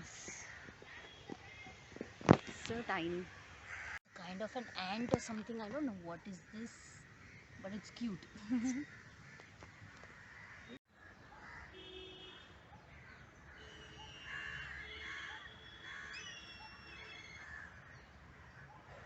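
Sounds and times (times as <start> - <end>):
crows cawing: 3.3 - 5.4, 6.2 - 12.0, 12.9 - 16.5, 17.1 - 19.0
birds whistling and chirping: 15.6 - 17.6.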